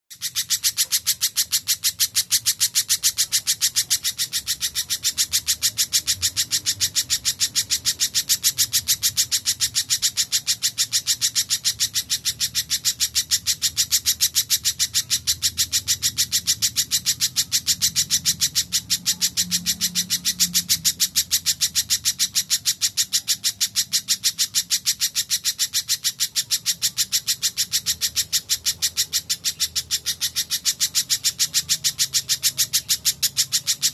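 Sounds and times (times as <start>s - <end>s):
bird calling high chips: 0.1s - 33.9s.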